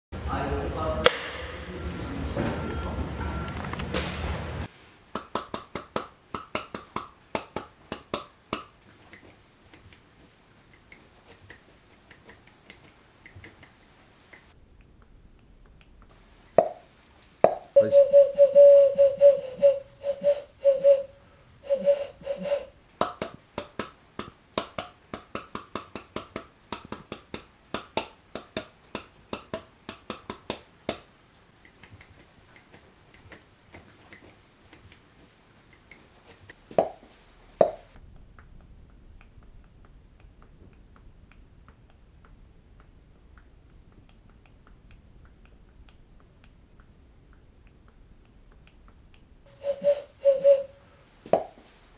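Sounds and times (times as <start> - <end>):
faint room noise: 0.2 - 51.9
sharp hand claps or snaps: 1.0 - 1.4, 5.1 - 10.0, 23.0 - 35.0, 37.6 - 49.3.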